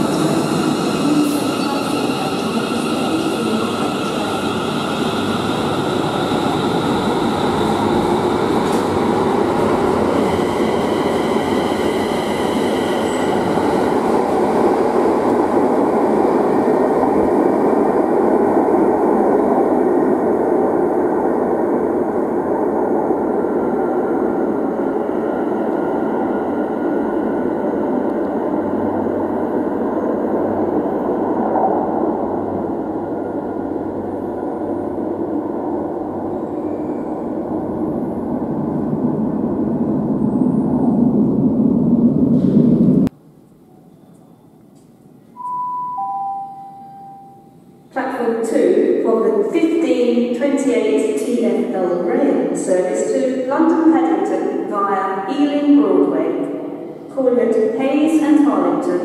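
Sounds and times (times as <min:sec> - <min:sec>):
electric train rumble: 0:00.0 - 0:45.4.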